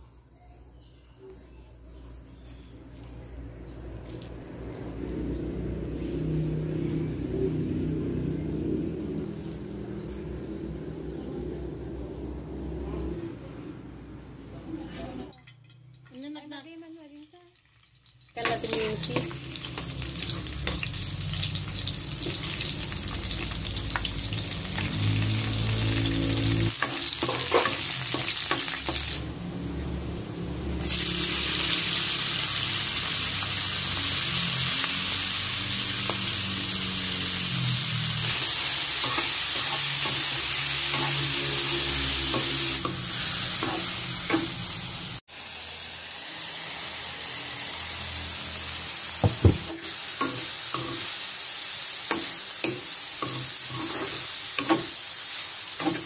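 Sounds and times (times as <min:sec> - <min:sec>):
food sizzling in hot oil: 0:08.5 - 0:10.4, 0:16.8 - 0:56.0
spatula scraping and knocking pan: 0:26.7 - 0:29.1, 0:52.1 - 0:55.0.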